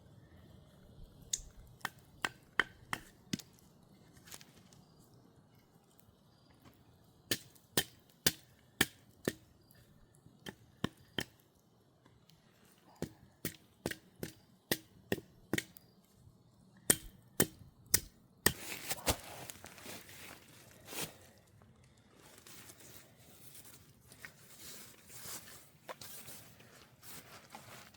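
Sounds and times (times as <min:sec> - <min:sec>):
crinkling rustle: 0:03.5 - 0:05.8, 0:18.6 - 0:27.9.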